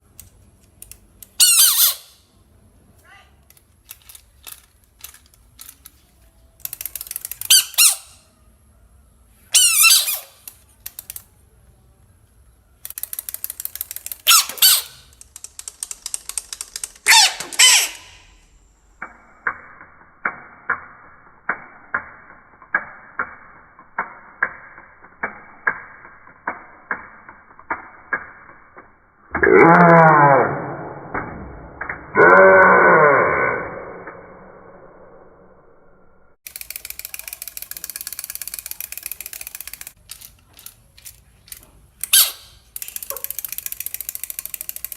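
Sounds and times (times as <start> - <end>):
sharp clicks: 0.0 - 1.4, 12.8 - 17.6, 36.4 - 44.9
rapid clicking: 15.1 - 17.1, 36.4 - 44.9
frog screaming: 32.2 - 34.0.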